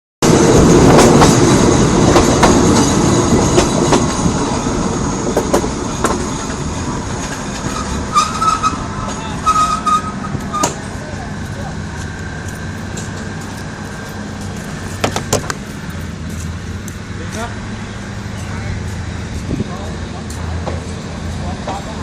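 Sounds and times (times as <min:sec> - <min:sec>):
train wheels rumbling on rails: 0:00.2 - 0:22.0
wheel squeal: 0:07.6 - 0:10.9.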